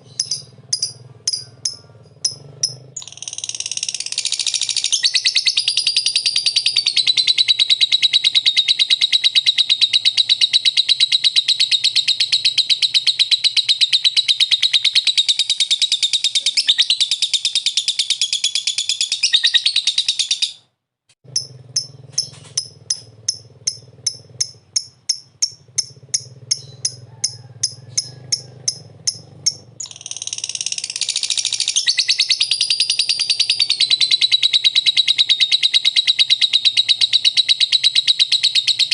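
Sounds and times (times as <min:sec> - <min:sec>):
bird chattering trill: 0:00.0 - 0:20.6, 0:21.2 - 0:38.9
bird short chirps: 0:21.3 - 0:38.9.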